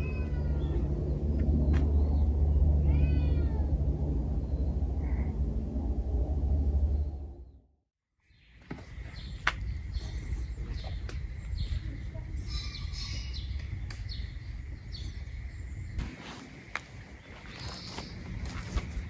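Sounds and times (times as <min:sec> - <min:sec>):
steady low rumble: 0:00.0 - 0:07.8
small birds chirping: 0:08.3 - 0:19.0.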